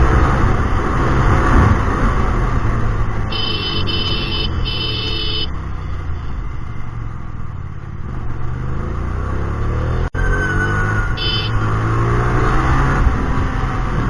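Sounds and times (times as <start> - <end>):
motorcycle engine rumbling: 0.0 - 10.2.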